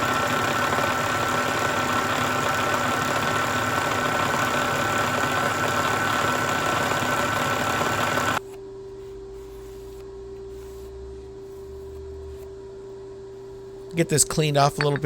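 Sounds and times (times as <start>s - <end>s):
milling machine cutting: 0.0s - 8.4s
steady hum: 8.4s - 15.0s.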